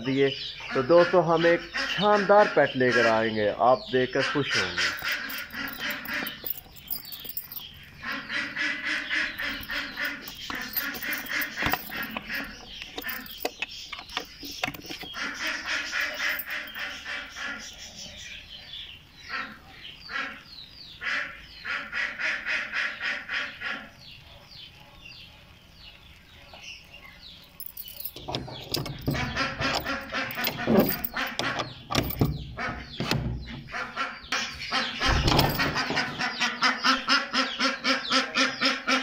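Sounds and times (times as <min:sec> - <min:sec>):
pet birds calling: 0:00.0 - 0:39.0
key in metal padlock: 0:04.8 - 0:07.8, 0:09.4 - 0:15.2, 0:15.9 - 0:16.9, 0:27.5 - 0:32.4, 0:35.2 - 0:35.8.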